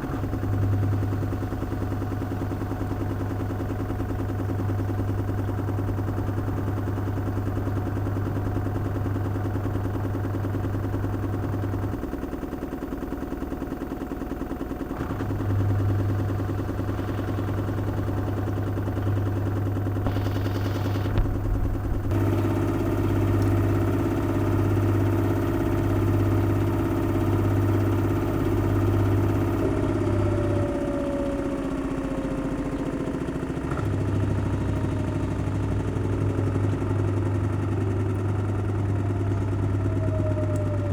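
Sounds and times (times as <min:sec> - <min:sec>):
washing machine motor hum: 0:00.0 - 0:40.9
higher hum: 0:20.0 - 0:22.1.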